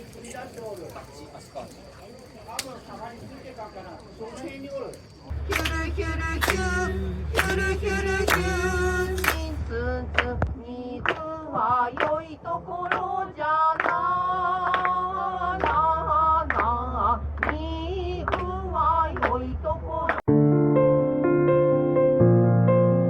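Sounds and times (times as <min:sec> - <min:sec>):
steady low hum: 0:05.3 - 0:11.1, 0:14.2 - 0:20.1
soft piano music: 0:20.3 - 0:23.0.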